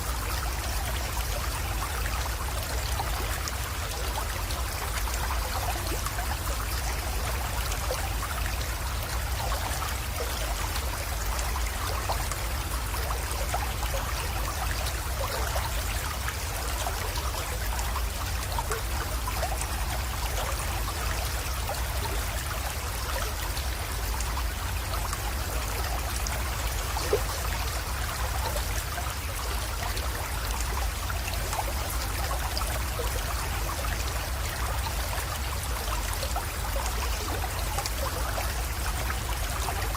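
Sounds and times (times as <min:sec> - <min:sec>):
creek trickling over stones: 0:00.0 - 0:39.9.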